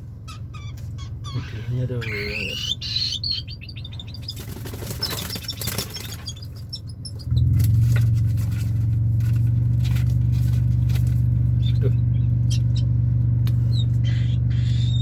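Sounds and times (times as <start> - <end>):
low motor hum: 0.0 - 15.0
bird calling high repeated notes: 0.2 - 7.4, 11.6 - 12.9, 13.6 - 15.0.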